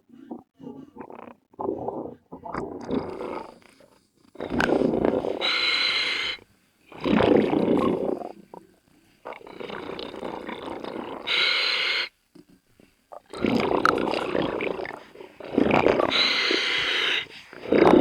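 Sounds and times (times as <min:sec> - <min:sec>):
bubbly exhales underwater: 0:00.2 - 0:03.6, 0:04.4 - 0:05.5, 0:06.9 - 0:08.6, 0:13.2 - 0:18.0
diver breathing through regulator: 0:04.4 - 0:06.5, 0:09.5 - 0:12.1, 0:13.4 - 0:18.0.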